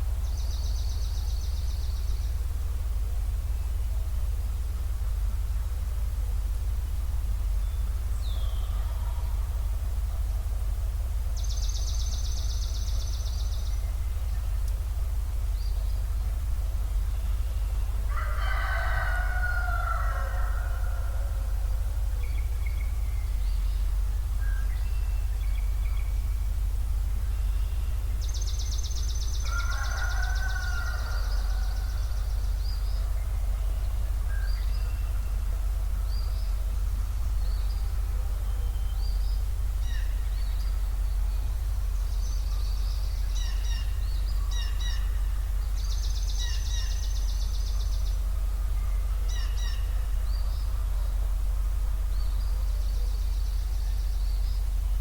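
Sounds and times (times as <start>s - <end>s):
steady low rumble: 0.0s - 55.0s
songbird trilling and chirping: 7.5s - 9.6s, 10.9s - 55.0s
rooster crowing: 18.1s - 22.0s, 29.2s - 34.3s.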